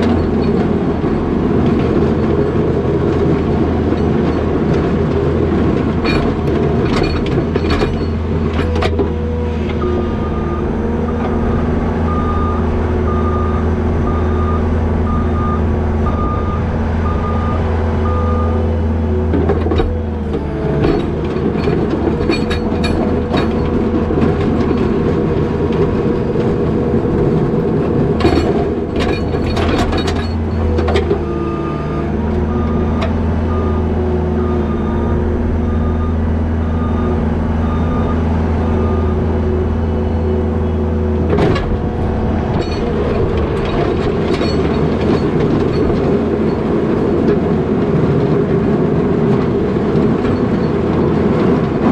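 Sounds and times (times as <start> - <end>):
machine and plow clanking: 0.0 - 51.9
skid steer diesel engine: 0.0 - 51.9
backup alarm beeping: 9.8 - 18.6.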